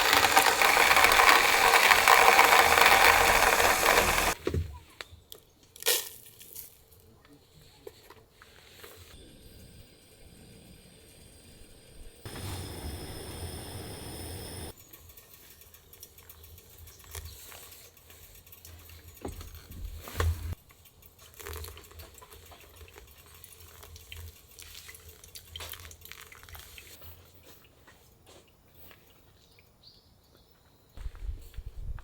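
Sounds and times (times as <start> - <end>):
water running: 0.0 - 4.4, 12.3 - 14.7.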